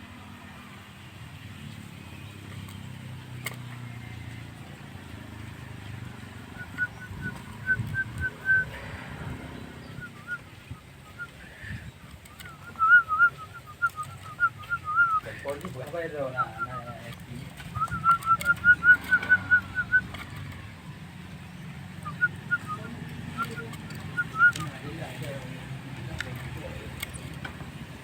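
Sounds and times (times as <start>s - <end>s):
bird warbling whistled notes: 6.5s - 8.8s, 9.6s - 15.3s, 17.7s - 20.1s.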